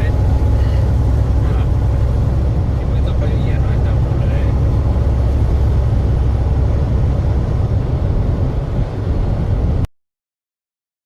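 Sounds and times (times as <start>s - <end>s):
truck engine and road noise: 0.0s - 9.9s.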